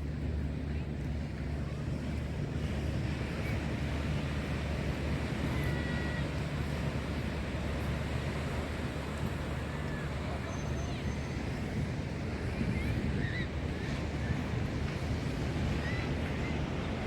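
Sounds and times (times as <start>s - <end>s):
ocean surf on sandy beach: 0.1s - 17.0s
wind buffeting microphone: 11.3s - 17.0s.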